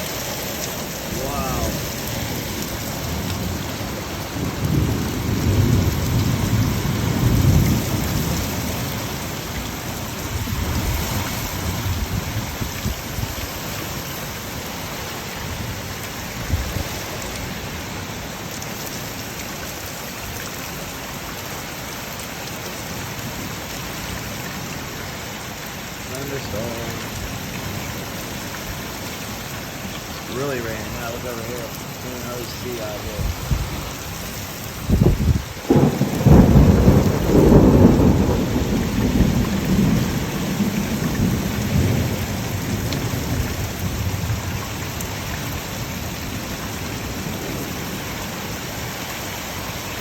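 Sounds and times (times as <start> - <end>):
heavy rain pouring: 0.0 - 50.0
low rumble of thunder: 1.1 - 13.7, 30.3 - 48.2.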